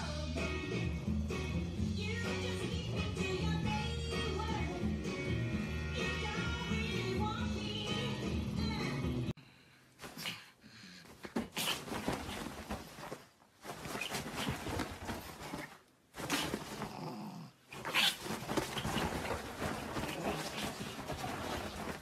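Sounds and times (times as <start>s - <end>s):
bedsheets rustling: 9.9s - 22.0s.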